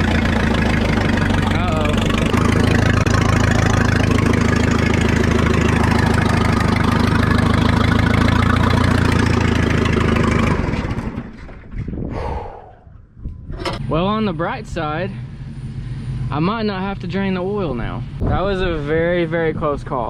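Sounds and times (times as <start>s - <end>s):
backhoe engine running: 0.0s - 12.0s, 13.2s - 18.2s.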